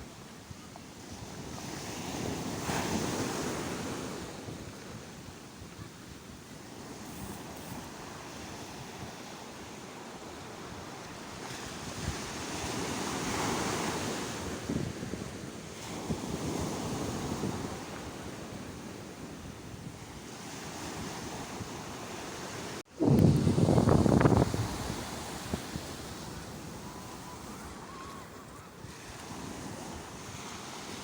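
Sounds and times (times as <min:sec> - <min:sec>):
sea waves breaking on shore: 0:01.0 - 0:31.0
wind buffeting microphone: 0:22.8 - 0:30.6.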